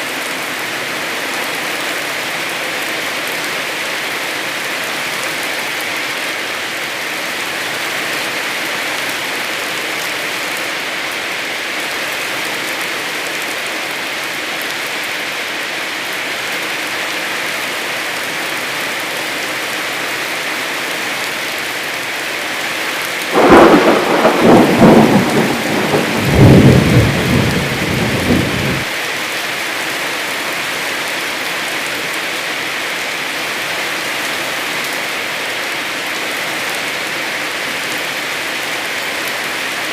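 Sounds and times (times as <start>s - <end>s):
heavy rain: 0.0s - 39.9s
thunderclap rumbling: 23.3s - 28.9s.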